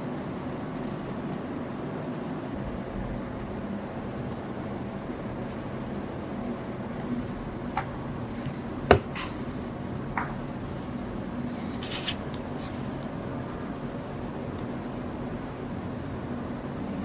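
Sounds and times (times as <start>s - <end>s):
low steady hum: 0.0s - 17.0s
brief scrape: 11.6s - 12.9s.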